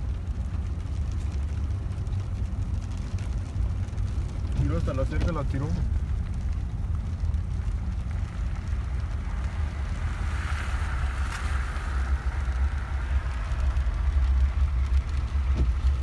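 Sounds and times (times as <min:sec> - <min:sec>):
wind buffeting microphone: 0:00.0 - 0:16.0
vehicle driving: 0:01.4 - 0:16.0
hiss: 0:08.5 - 0:14.8.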